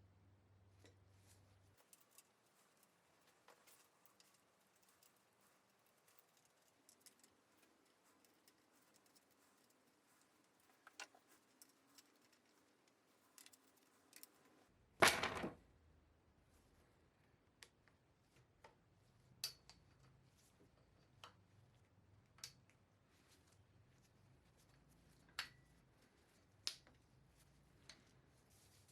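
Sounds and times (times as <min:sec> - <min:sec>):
metallic clicks of tools: 0:19.4 - 0:20.1.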